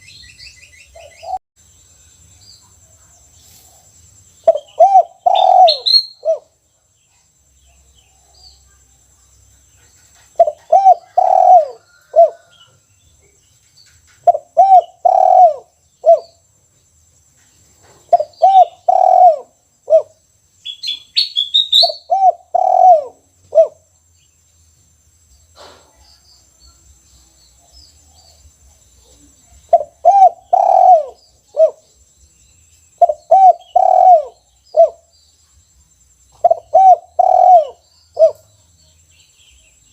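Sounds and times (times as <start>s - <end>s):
small bird chirping: 0.0s - 39.9s
dove cooing: 4.4s - 6.6s, 10.2s - 12.6s, 14.2s - 16.4s, 18.1s - 20.2s, 21.8s - 23.8s, 29.1s - 31.9s, 33.0s - 35.1s, 36.4s - 38.5s.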